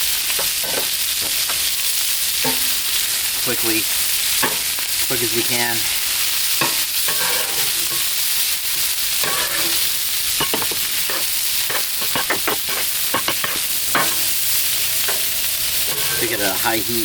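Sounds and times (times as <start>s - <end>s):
pork sizzling on a griddle: 0.0s - 17.0s
spatula scraping metal griddle: 4.4s - 17.0s.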